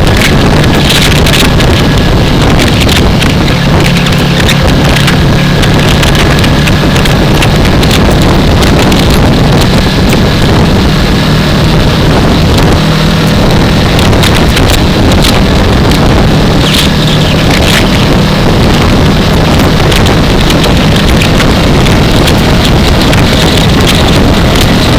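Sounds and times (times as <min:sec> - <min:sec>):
motorcycle engine running: 0:00.0 - 0:24.9
wind rushing over microphone: 0:00.0 - 0:24.9.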